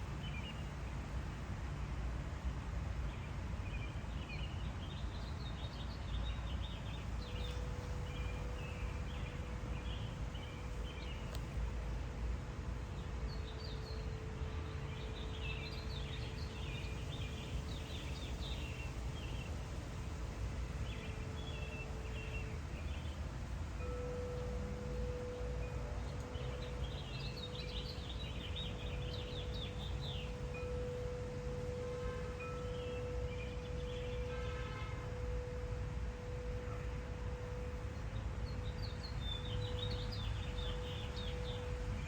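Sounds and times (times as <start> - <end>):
wind chime ringing: 23.7 - 42.0
small birds chirping: 23.9 - 35.6, 37.7 - 42.0.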